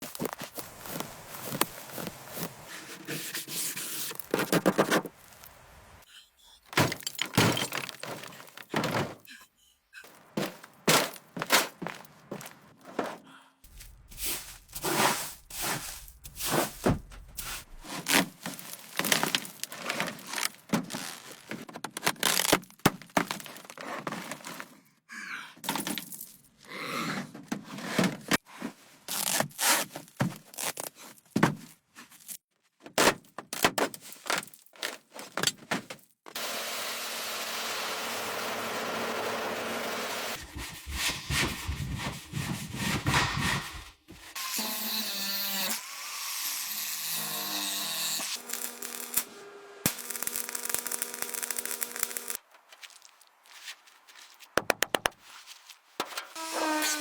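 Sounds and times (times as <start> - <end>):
knocks and cracks on hard material: 54.6 - 55.2.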